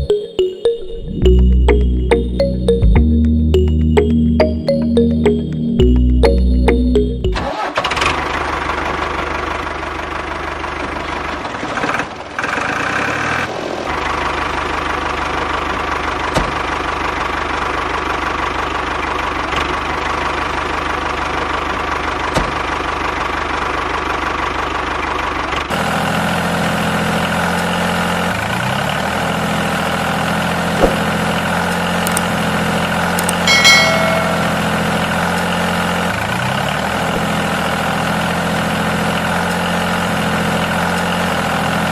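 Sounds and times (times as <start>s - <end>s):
brief high-pitched tone: 0.0s - 7.5s, 33.5s - 35.1s
engine idling with knocking chug: 7.6s - 13.0s.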